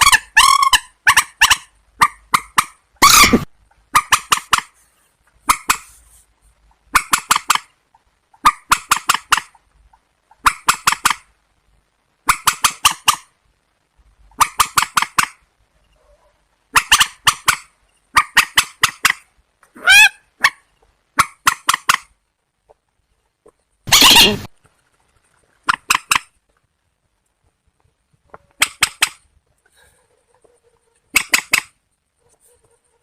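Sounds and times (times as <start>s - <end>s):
marsh bird harsh calls: 23.9s - 24.5s.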